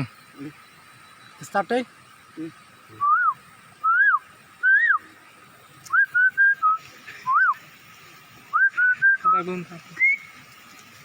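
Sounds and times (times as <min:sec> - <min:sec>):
person whistling bird-like call: 0:03.0 - 0:05.0, 0:05.9 - 0:07.6, 0:08.5 - 0:09.4.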